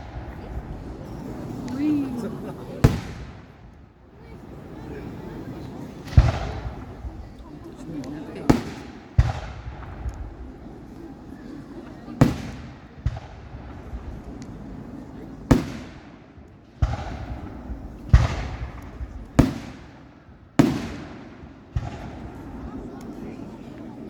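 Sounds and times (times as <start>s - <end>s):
firework shells bursting: 6.0s - 10.9s, 15.5s - 23.2s.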